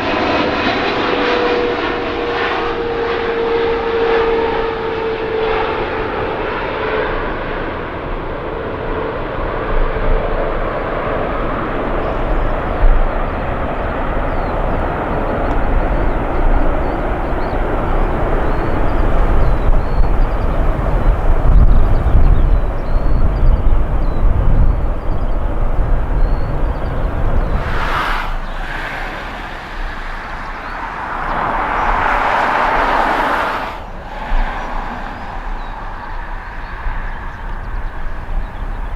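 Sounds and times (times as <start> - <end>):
jet airliner engines passing: 0.0 - 38.9
low rumble: 19.3 - 38.9.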